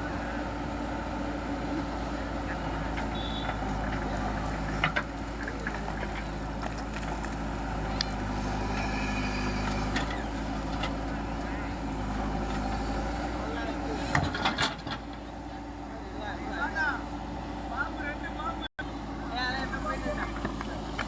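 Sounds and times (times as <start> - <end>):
heavy diesel machinery running: 0.0 - 21.0.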